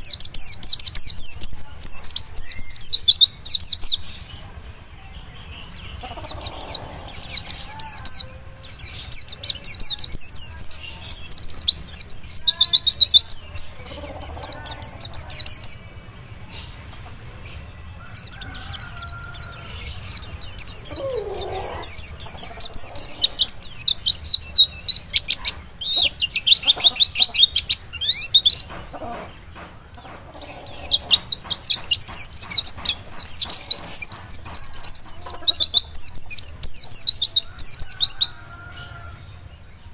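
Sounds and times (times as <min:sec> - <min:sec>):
bird twittering: 0:18.0 - 0:39.2.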